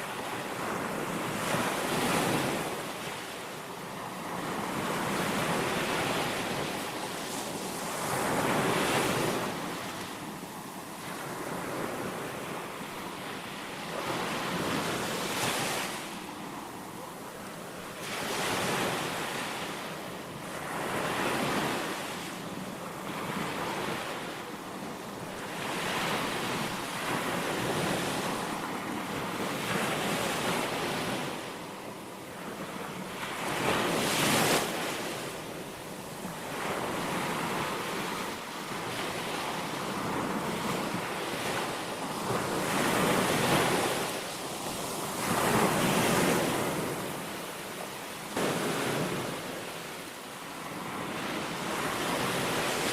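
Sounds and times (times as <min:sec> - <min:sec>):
sea waves breaking on beach: 0:00.0 - 0:52.9.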